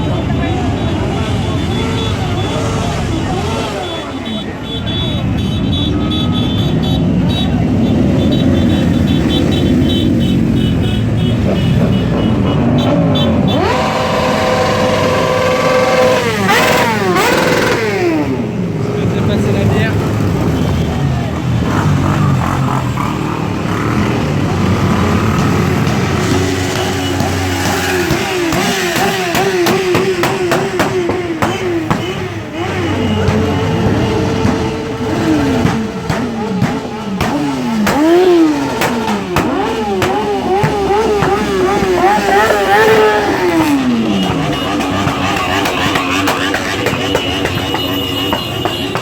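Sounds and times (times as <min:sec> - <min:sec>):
motorcycle engines rumbling and revving: 0:00.0 - 0:49.0
engine popping cracks: 0:33.2 - 0:49.0.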